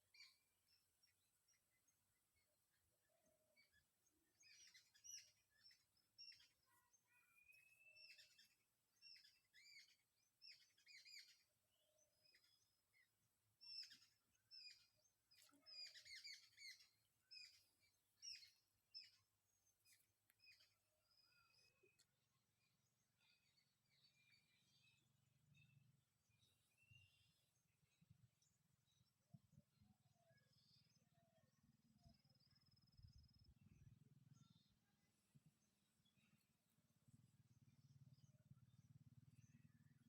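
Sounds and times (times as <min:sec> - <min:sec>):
faint birdsong chirps: 0:00.0 - 0:40.0.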